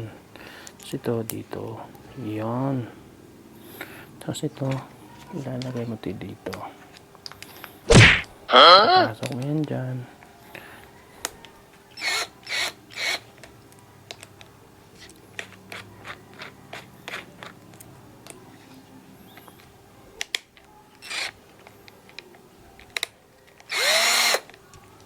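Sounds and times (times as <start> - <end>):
short loud cry: 7.9 - 9.1
drill bits clicking and rubbing: 12.0 - 13.2, 21.0 - 21.4, 22.9 - 24.6.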